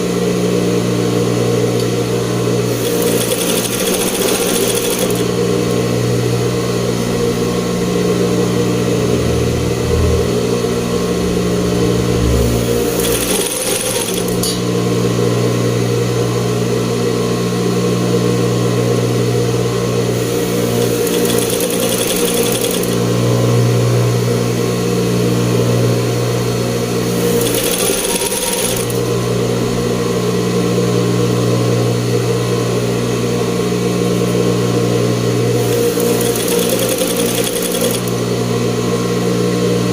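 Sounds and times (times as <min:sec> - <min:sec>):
sewing machine running: 0:02.0 - 0:07.7, 0:12.2 - 0:14.9, 0:20.0 - 0:23.4, 0:26.8 - 0:29.4, 0:35.4 - 0:38.4.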